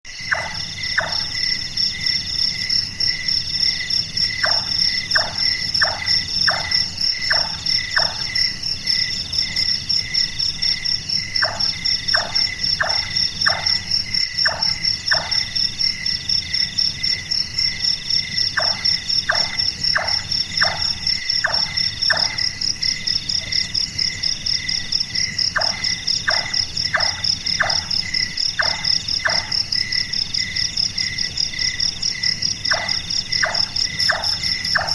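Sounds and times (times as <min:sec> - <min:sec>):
nightjar knocking calls: 0:00.1 - 0:01.5, 0:04.4 - 0:08.3, 0:11.4 - 0:15.4, 0:18.5 - 0:22.4, 0:25.5 - 0:29.7, 0:32.7 - 0:34.9
crickets and insects trilling: 0:00.1 - 0:34.9.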